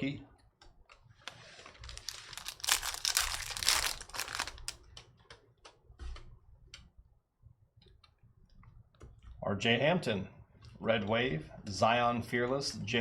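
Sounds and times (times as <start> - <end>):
wrapper tearing and crinkling: 1.4 - 4.8.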